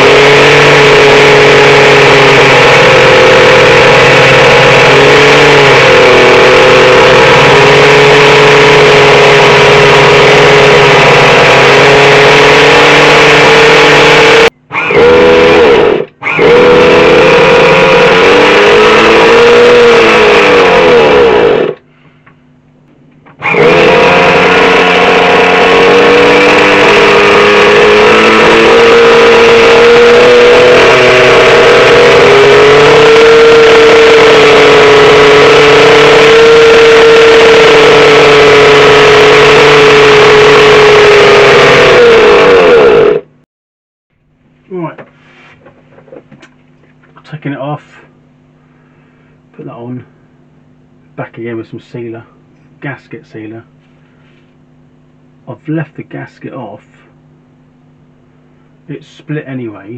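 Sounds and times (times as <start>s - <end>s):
nitro engine high-pitched buzz: 0.0s - 22.1s, 23.2s - 43.5s.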